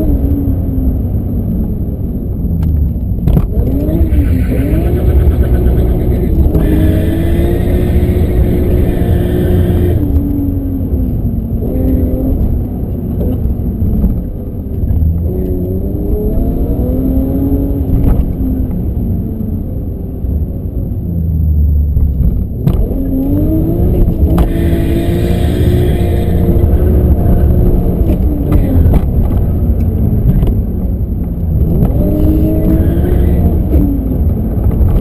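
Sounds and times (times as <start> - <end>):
car engine revving: 3.3 - 10.6, 22.7 - 30.0, 31.6 - 35.0.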